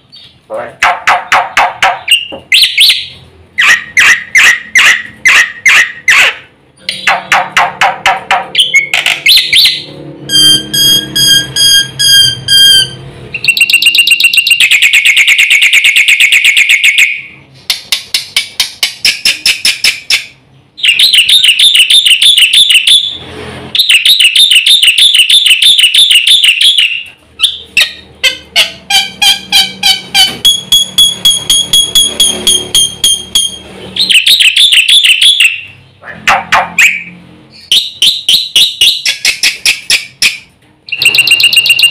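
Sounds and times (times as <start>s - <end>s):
starling singing: 0.1s - 15.1s.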